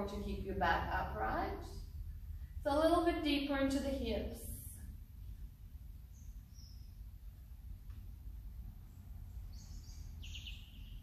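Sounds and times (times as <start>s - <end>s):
low steady hum: 0.0s - 11.0s
birds chirping: 6.0s - 7.2s, 8.9s - 11.0s.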